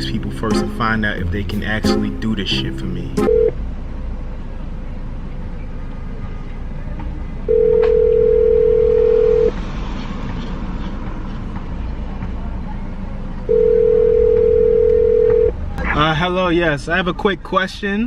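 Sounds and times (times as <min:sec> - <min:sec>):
telephone ringback tone: 0:03.3 - 0:03.5, 0:07.5 - 0:09.5, 0:13.5 - 0:15.5.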